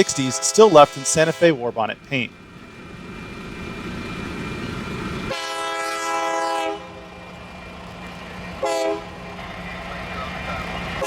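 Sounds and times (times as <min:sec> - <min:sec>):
train air horn blast: 0:00.0 - 0:02.3, 0:05.3 - 0:07.1, 0:08.6 - 0:09.3
diesel locomotive rumbling: 0:00.0 - 0:11.0.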